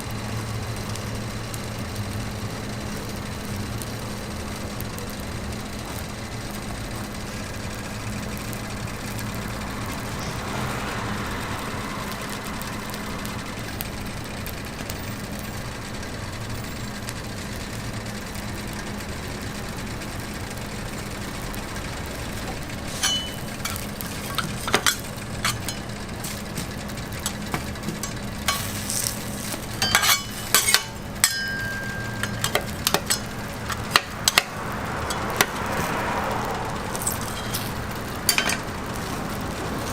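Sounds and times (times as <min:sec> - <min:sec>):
low mechanical hum: 0:00.0 - 0:39.9
cooking utensils clinking: 0:22.4 - 0:35.8, 0:36.9 - 0:39.9.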